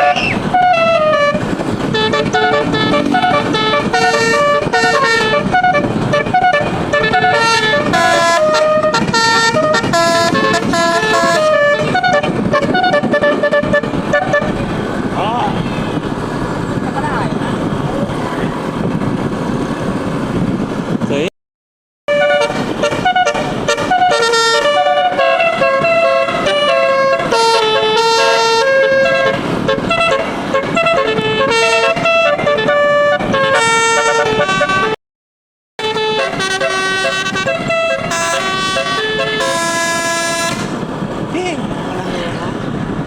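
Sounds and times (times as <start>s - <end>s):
musical air horn playing a tune: 0.0s - 14.5s, 22.1s - 35.0s, 35.8s - 40.8s.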